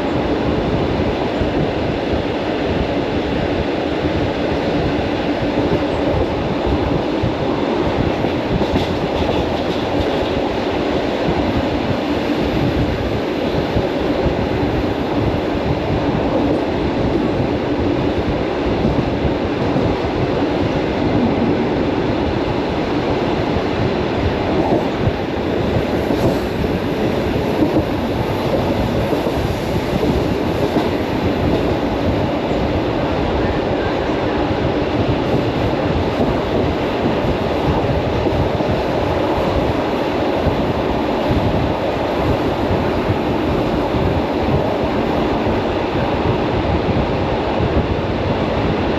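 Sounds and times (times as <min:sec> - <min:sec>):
train wheels rumbling on track: 0:00.0 - 0:48.9
rail joints clicking: 0:08.0 - 0:15.0.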